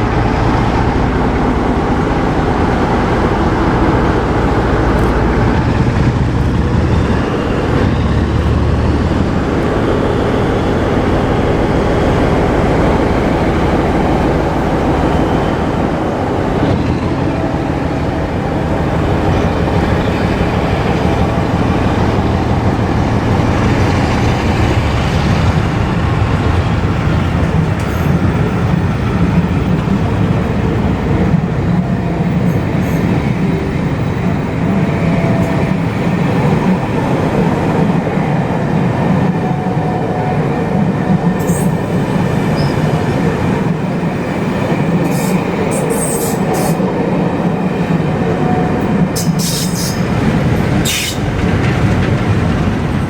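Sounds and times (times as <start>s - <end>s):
diesel train rumbling past: 0.0s - 53.0s
wheels clattering over rails: 41.2s - 53.0s.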